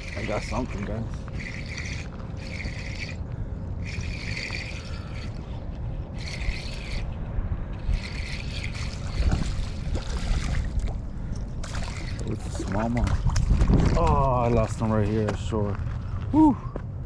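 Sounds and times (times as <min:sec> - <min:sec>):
fishing reel cranking: 0:00.0 - 0:03.2, 0:03.8 - 0:05.5, 0:06.1 - 0:07.1, 0:07.8 - 0:10.8, 0:11.6 - 0:12.4
river: 0:00.0 - 0:03.2, 0:03.8 - 0:07.1, 0:07.8 - 0:14.6
wind: 0:00.0 - 0:17.0.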